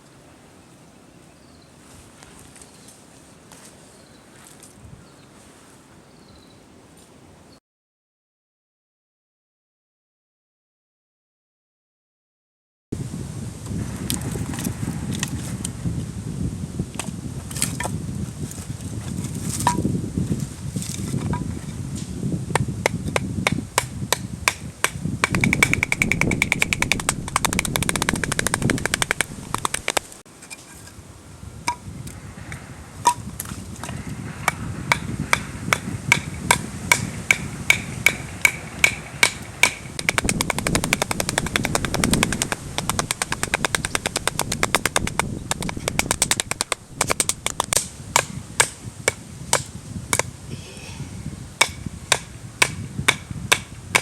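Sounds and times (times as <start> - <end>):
low rumble: 13.8 - 17.0, 31.8 - 43.2
rapid sharp knocks: 24.5 - 30.1, 34.5 - 49.7, 51.6 - 54.0.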